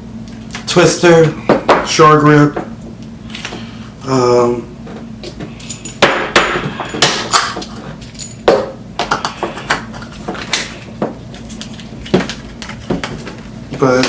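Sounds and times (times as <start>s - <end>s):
packaging rustling: 9.9s - 14.0s.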